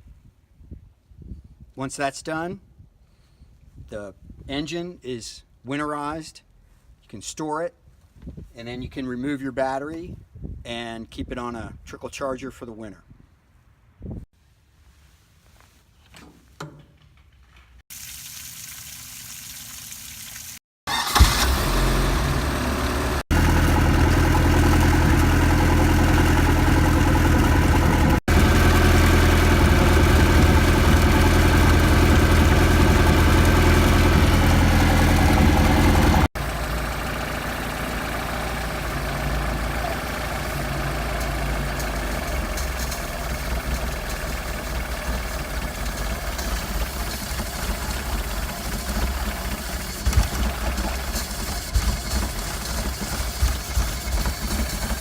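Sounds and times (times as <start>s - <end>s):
boat engine idling: 21.0s - 55.0s.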